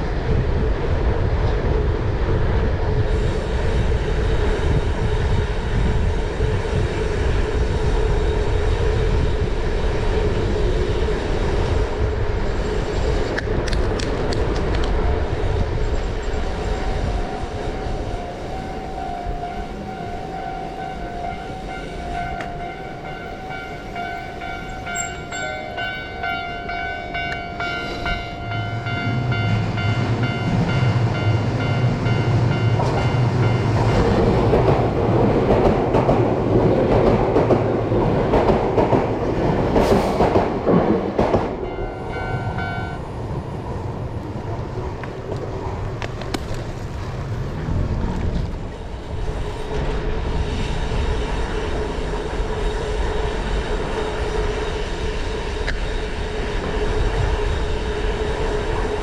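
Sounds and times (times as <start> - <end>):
train running noise: 0.0 - 59.0
train horn: 41.7 - 43.2.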